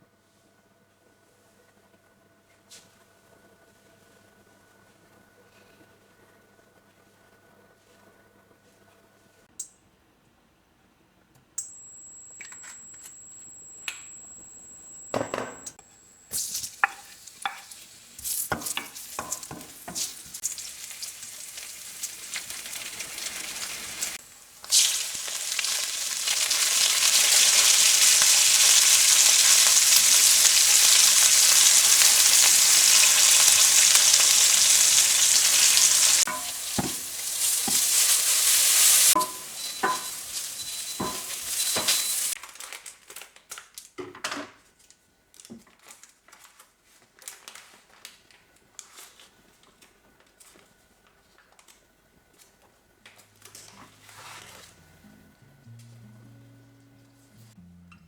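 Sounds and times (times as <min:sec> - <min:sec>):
food sizzling in a pan: 0:16.3 - 0:42.4.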